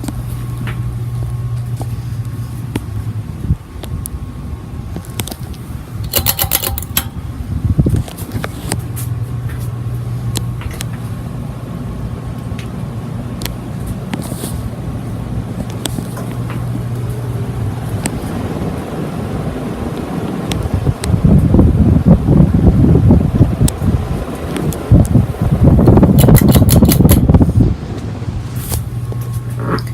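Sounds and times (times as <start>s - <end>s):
ceiling fan motor hum: 0.0s - 29.9s
clicks and knocks: 6.1s - 7.2s
rush of moving air: 14.2s - 29.4s.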